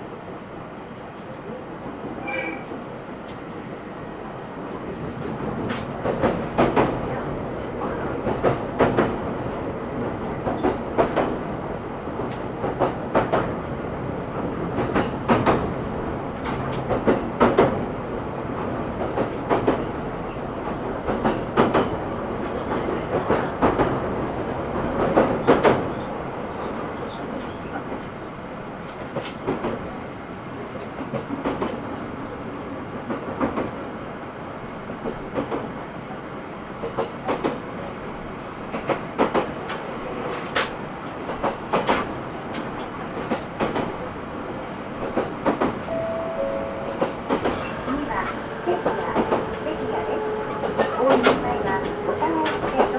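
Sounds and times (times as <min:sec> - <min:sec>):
train interior rumble: 0:00.0 - 0:52.9.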